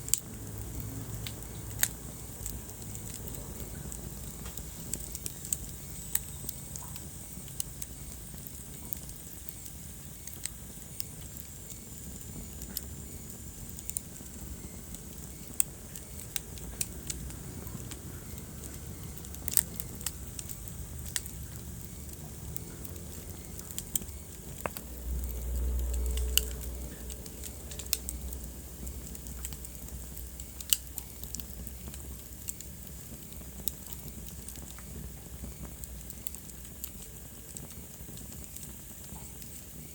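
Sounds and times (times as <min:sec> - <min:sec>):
low rumble of flame: 0:00.0 - 0:39.9
wood fire crackling and popping: 0:00.0 - 0:39.9.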